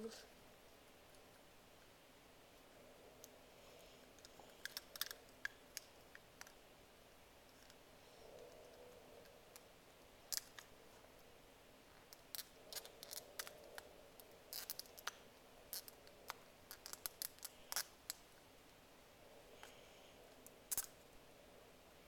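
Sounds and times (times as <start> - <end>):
plastic toy parts clicking: 4.2 - 6.6.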